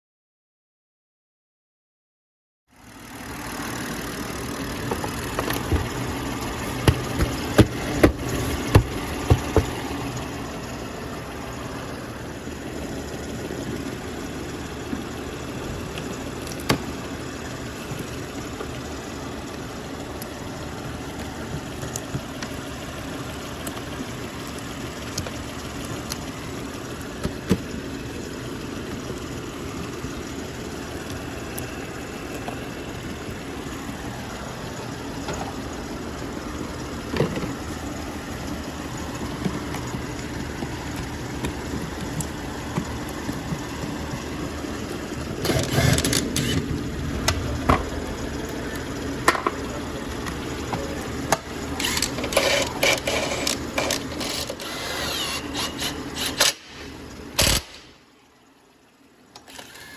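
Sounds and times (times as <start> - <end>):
car engine idling: 2.7 - 59.3
parts clicking and clattering: 4.6 - 10.7, 36.5 - 58.0.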